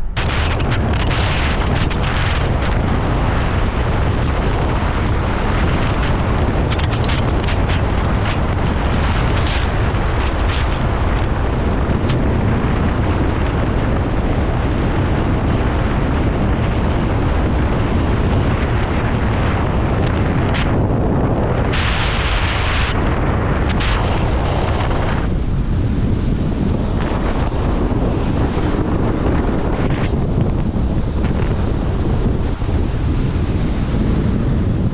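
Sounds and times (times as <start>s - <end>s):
car road noise: 0.0s - 34.9s
wind buffeting microphone: 0.0s - 34.9s.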